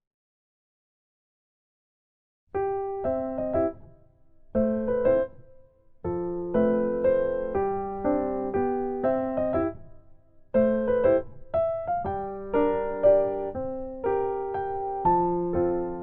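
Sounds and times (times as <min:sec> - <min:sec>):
gentle piano music: 0:02.5 - 0:16.0.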